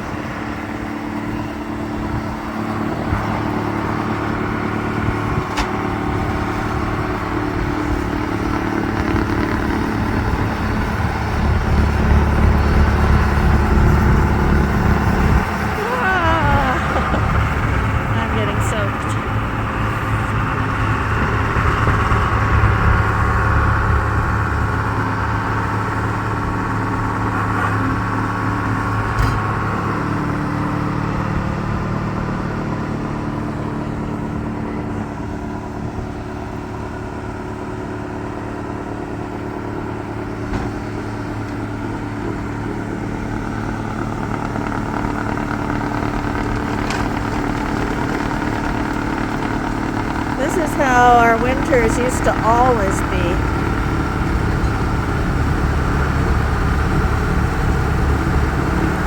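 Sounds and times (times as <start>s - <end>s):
snowblower engine running: 0.0s - 59.0s.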